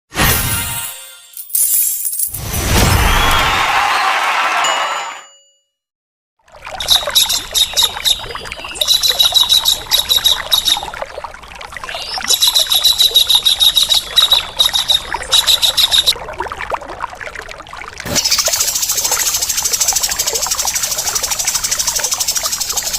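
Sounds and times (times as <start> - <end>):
trickle of running water: 6.4 - 22.9
harsh rattling bird calls: 18.2 - 20.2.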